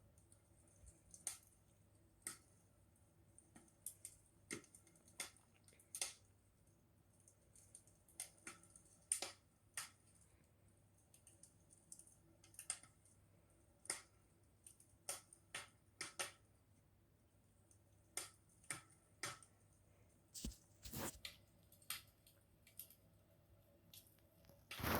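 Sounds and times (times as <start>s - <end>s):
wood fire crackling: 23.9s - 24.9s.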